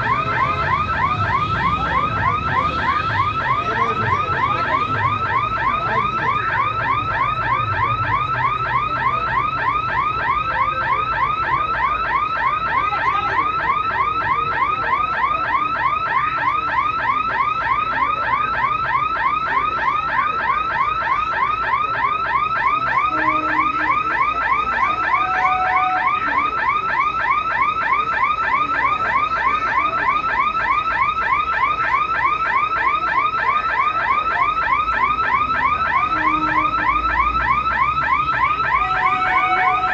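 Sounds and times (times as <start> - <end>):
electronic alarm chirping: 23.1 - 26.4, 38.4 - 39.9.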